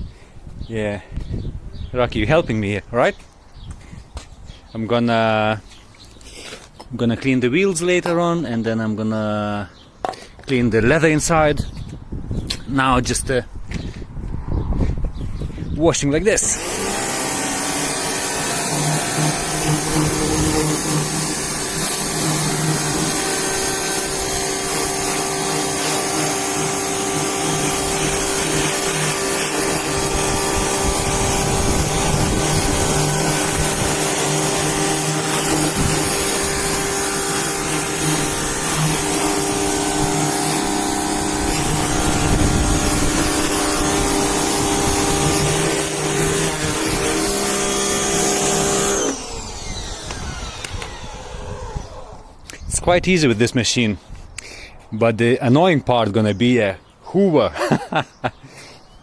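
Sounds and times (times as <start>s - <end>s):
pressure washer motor hum: 16.3s - 52.3s.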